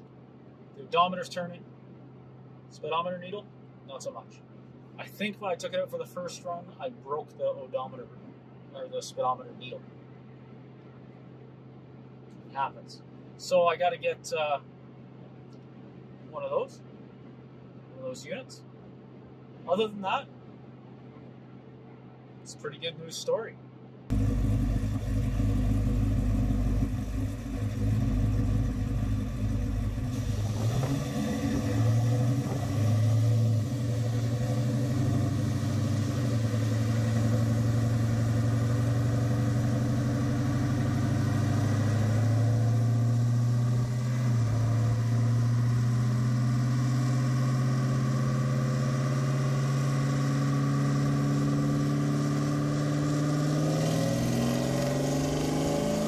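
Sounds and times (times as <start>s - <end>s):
engine running under load: 24.1s - 56.0s.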